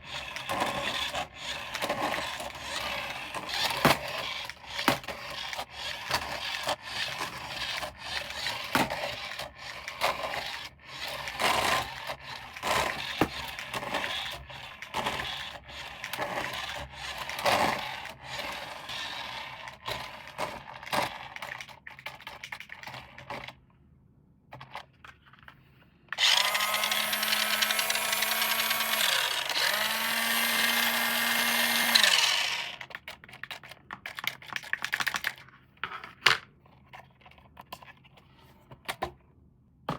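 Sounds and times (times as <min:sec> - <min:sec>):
plastic toy packaging rustling: 0:24.6 - 0:38.2.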